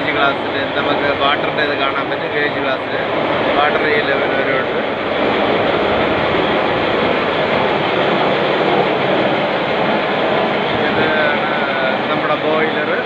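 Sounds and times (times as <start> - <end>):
ship engine room machinery din: 0.0 - 13.0.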